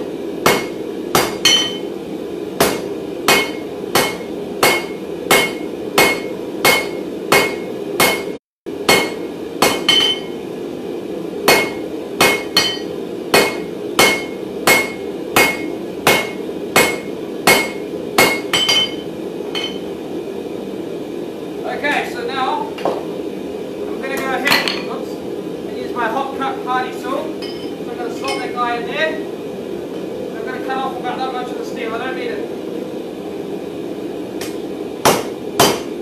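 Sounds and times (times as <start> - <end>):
steady hum: 0.0 - 36.0
hammer striking steel on anvil: 0.4 - 1.9, 2.6 - 10.4, 11.5 - 19.9, 27.4 - 28.6, 34.4 - 36.0.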